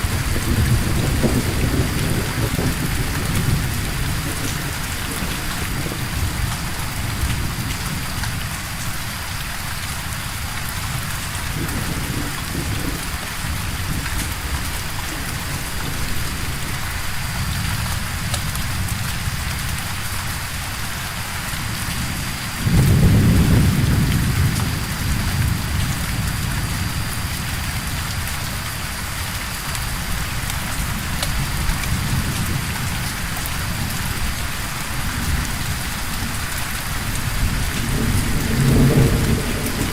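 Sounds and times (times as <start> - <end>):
loud thunderclap: 0.0 - 7.7, 22.0 - 27.5, 37.2 - 39.9
thunder rumbling: 0.0 - 9.2, 10.1 - 39.9
steady rain: 0.0 - 39.9.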